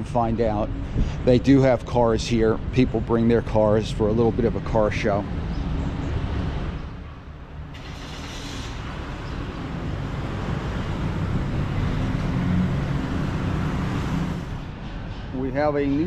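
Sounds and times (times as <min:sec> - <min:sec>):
car engine rumbling: 0:03.5 - 0:14.8.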